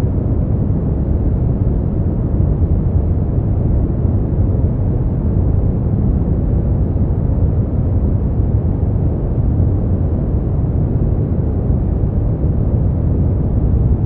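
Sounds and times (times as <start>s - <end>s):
deep rumbling brown noise: 0.0s - 14.0s.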